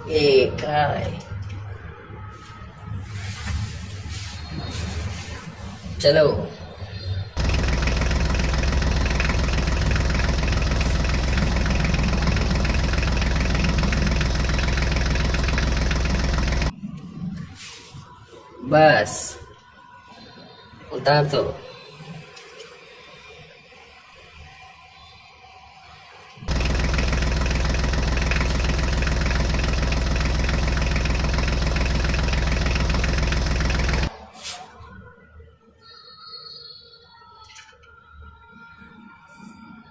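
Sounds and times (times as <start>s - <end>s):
tractor engine idling: 7.4s - 16.7s, 26.4s - 34.1s.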